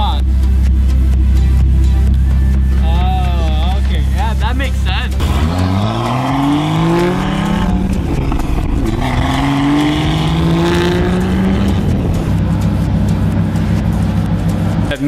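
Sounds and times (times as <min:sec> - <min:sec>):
car engine accelerating hard: 0:04.4 - 0:15.0.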